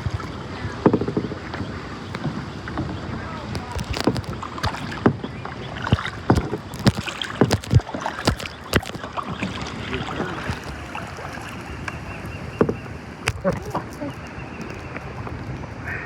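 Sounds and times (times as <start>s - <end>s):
sharp knocks and clicks: 0.0s - 9.7s
water splashing against a kayak: 0.0s - 16.0s.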